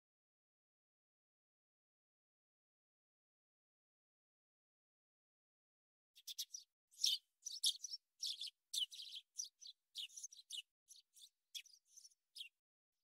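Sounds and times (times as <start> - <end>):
birds chirping: 6.2 - 12.6.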